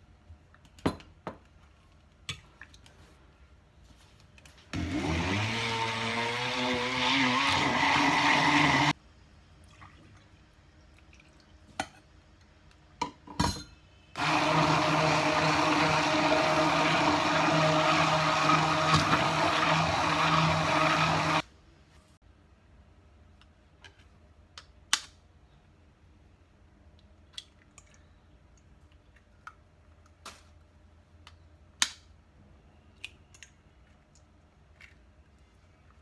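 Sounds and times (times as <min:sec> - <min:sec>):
electric blender running: 0:04.8 - 0:09.0, 0:14.2 - 0:21.4.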